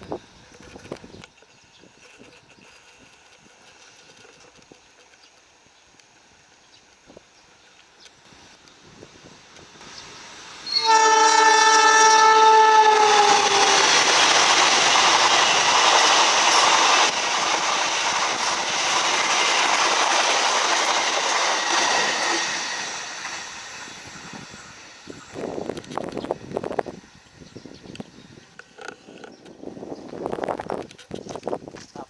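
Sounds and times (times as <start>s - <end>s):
train rushing and clattering past: 8.3s - 30.8s
train horn: 10.6s - 14.0s.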